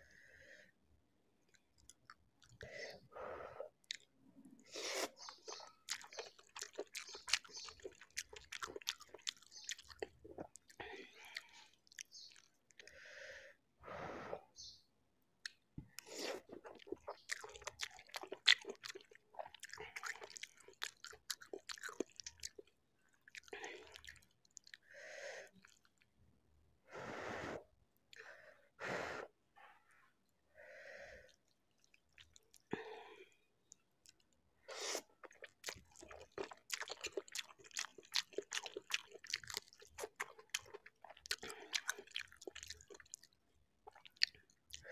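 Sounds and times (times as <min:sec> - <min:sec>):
wet chewing and slurping: 0:03.8 - 0:12.9, 0:15.5 - 0:24.8, 0:31.3 - 0:32.7, 0:33.7 - 0:44.9.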